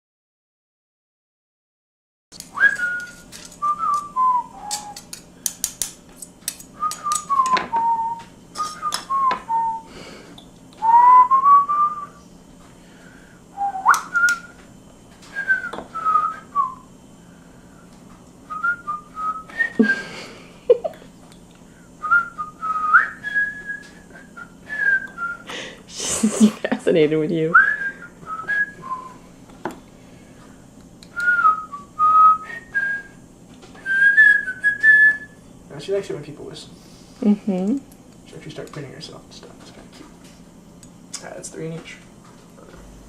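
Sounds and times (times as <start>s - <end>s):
cockatiel whistling: 2.6s - 5.0s, 13.6s - 14.5s.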